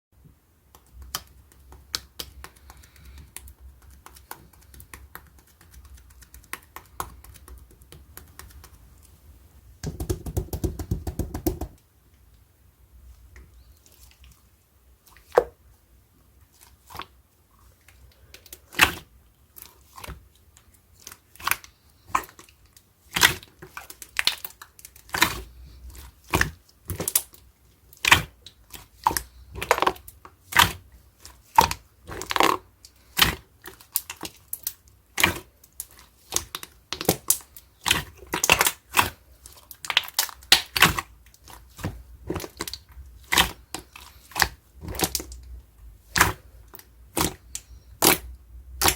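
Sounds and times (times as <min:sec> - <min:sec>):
slime popping and crackling: 0:28.0 - 0:45.4, 0:47.1 - 0:48.9.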